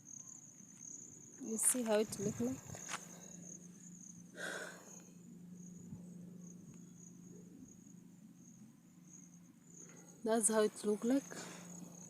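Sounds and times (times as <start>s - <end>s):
crickets chirring: 0.0s - 12.0s
low steady hum: 0.0s - 12.0s.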